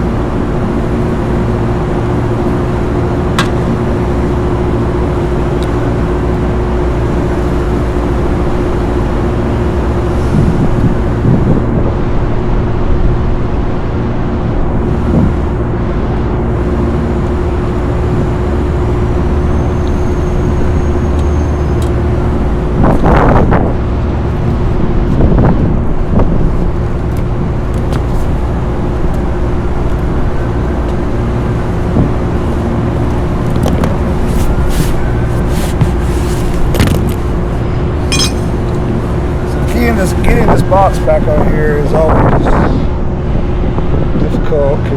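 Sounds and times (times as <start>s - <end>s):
rooftop machinery drone: 0.0s - 44.9s
wind on microphone: 9.6s - 15.7s, 22.6s - 28.4s
handling rustling and scraping: 33.4s - 38.8s.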